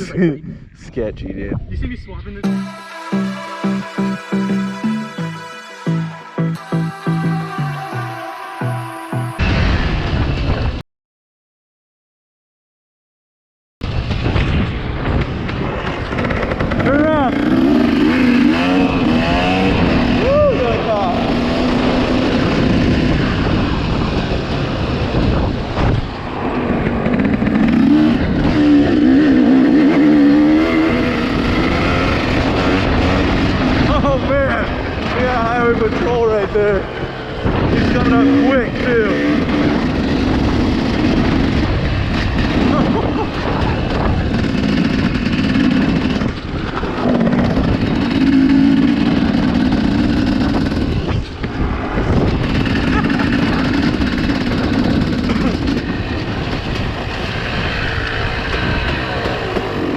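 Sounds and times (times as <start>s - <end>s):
dirt bike engine running: 14.4s - 59.9s.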